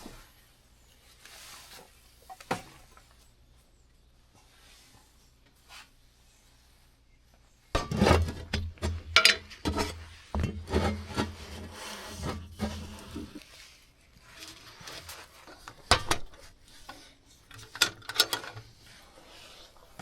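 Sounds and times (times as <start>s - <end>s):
rubbing and scraping: 7.8s - 17.8s.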